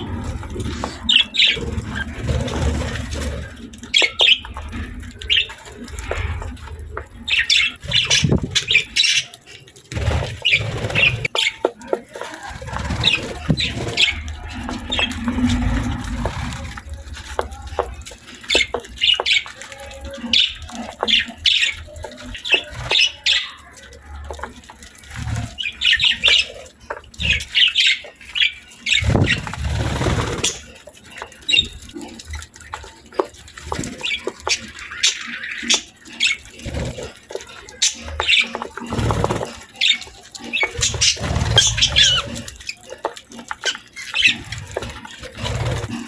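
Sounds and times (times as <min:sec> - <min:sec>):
budgerigars chirping: 0:03.9 - 0:04.6, 0:37.8 - 0:42.9.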